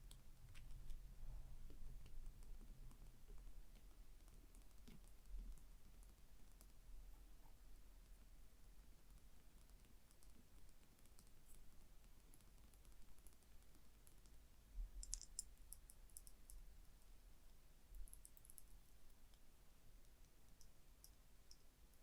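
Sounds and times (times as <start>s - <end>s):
light tapping on small object: 14.1s - 16.6s.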